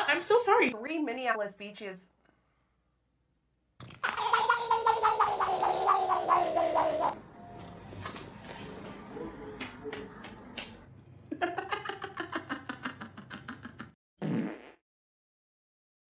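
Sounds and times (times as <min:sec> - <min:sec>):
fart-like rasp: 0:14.2 - 0:14.8.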